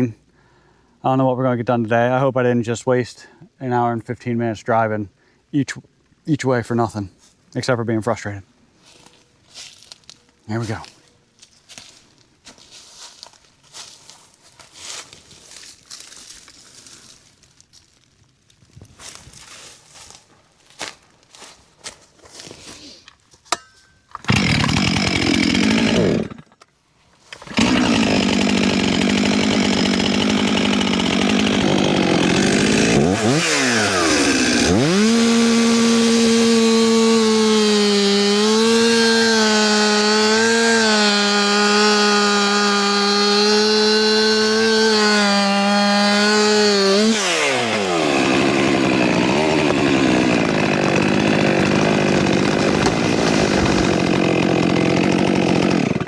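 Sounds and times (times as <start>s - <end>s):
chainsaw cutting at high revs: 24.3s - 26.6s, 27.3s - 56.0s.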